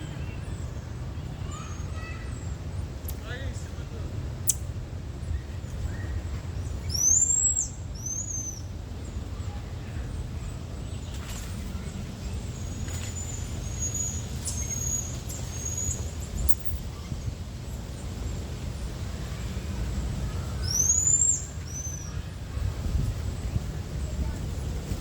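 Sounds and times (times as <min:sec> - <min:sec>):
marmoset chirps: 0:04.4 - 0:04.7, 0:05.3 - 0:08.7, 0:12.3 - 0:17.2, 0:20.6 - 0:22.2
marmoset squeaks: 0:13.3 - 0:16.8.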